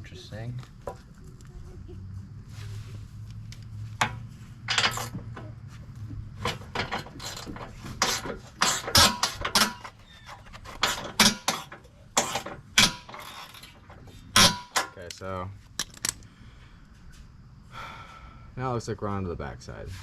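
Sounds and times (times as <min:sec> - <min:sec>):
metal tools clinking: 0:04.0 - 0:05.4, 0:06.4 - 0:15.2.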